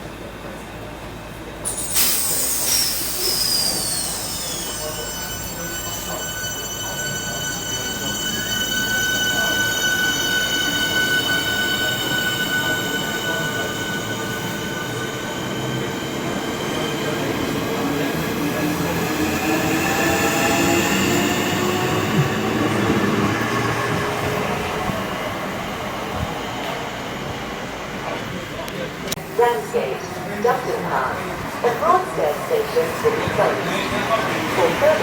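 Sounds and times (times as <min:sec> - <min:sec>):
train rumble: 0:00.0 - 0:35.0
train wheels and brakes squealing: 0:01.6 - 0:29.1.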